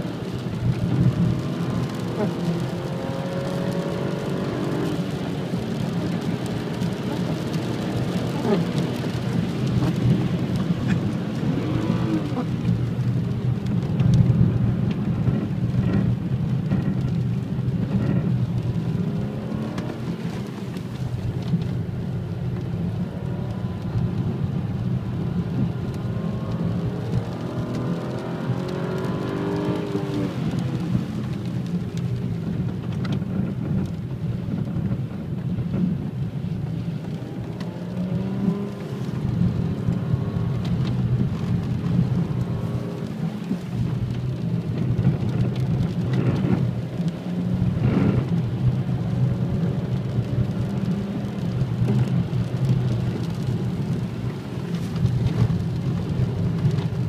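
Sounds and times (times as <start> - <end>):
car engine revving: 0.0 - 13.2, 15.2 - 31.2
tyres on wet road: 0.0 - 57.0.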